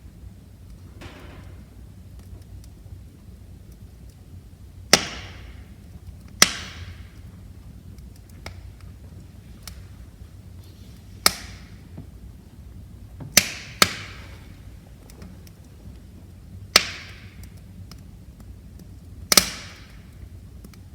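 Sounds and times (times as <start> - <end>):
firewood crackling: 0.0 - 20.9
low rumble of flames: 0.0 - 20.9
loud wood pops: 4.9 - 5.6, 6.4 - 7.2, 11.2 - 11.8, 13.2 - 14.5, 16.7 - 17.5, 19.3 - 20.0.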